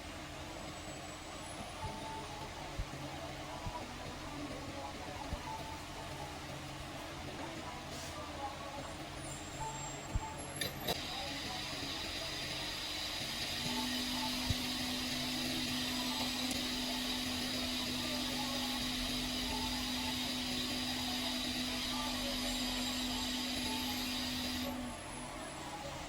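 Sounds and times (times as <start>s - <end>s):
electric blower humming: 10.9s - 25.0s.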